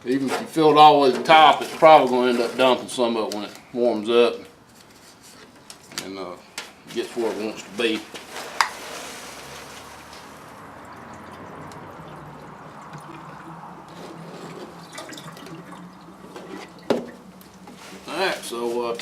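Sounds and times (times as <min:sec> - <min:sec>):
liquid pouring into radiator: 0:08.3 - 0:18.0.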